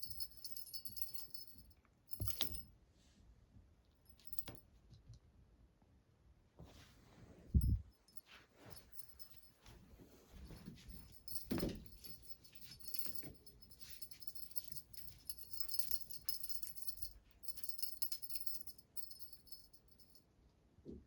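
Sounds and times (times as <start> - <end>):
small jingle bell jingling: 0.0 - 2.7, 4.1 - 4.6, 7.5 - 9.7, 10.3 - 20.2.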